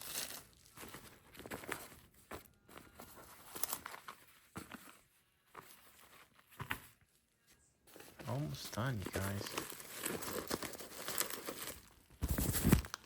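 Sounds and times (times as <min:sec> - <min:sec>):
packaging rustling: 0:00.0 - 0:07.1, 0:07.9 - 0:13.0.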